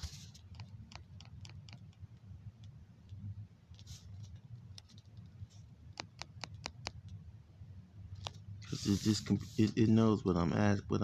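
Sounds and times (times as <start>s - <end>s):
low room hum: 0.0s - 11.0s
computer mouse clicks: 0.4s - 2.0s, 5.9s - 7.2s.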